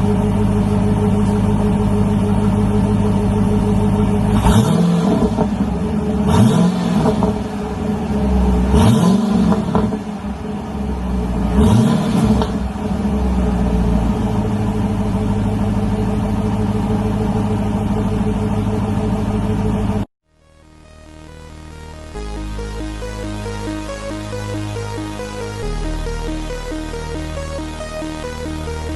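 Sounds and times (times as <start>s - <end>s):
car engine idling: 0.0s - 20.1s
car engine revving: 0.0s - 20.1s, 22.0s - 28.9s.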